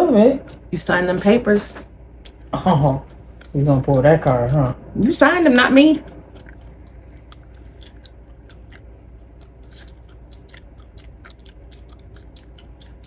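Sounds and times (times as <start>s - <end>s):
gum chewing smacks: 1.8s - 4.8s, 6.0s - 13.0s.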